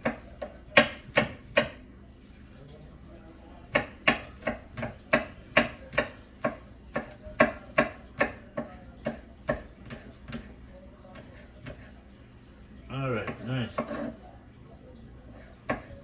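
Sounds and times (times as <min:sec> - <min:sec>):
knife chopping on cutting board: 0:00.0 - 0:01.8, 0:03.7 - 0:12.0, 0:13.2 - 0:14.2, 0:15.3 - 0:16.0.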